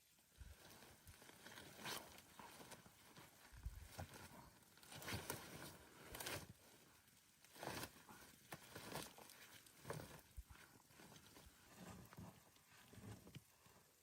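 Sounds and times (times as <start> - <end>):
faint crunches or rustles: 0.3 - 13.8.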